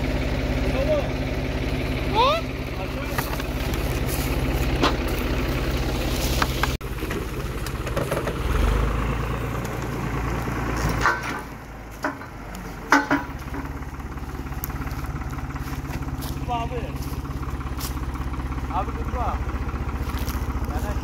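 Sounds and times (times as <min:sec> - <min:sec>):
tractor diesel engine idling: 0:00.0 - 0:21.0
sharp knocks: 0:11.0 - 0:13.8.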